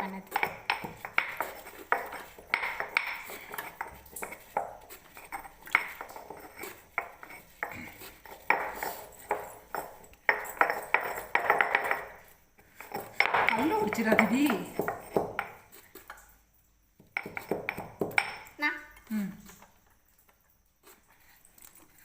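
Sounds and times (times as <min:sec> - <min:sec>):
stone grinder knocking: 0:00.2 - 0:15.6, 0:17.0 - 0:18.5.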